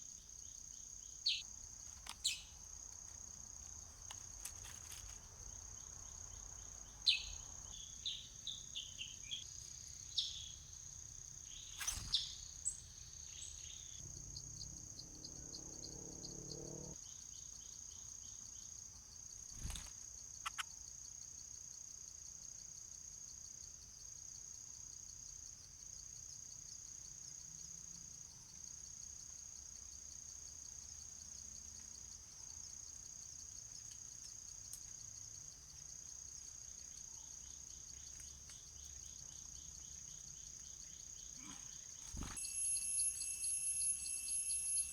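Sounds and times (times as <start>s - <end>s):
short sharp bird chirps: 11.5s - 13.9s
high-pitched insect drone: 13.8s - 17.0s, 42.1s - 44.9s.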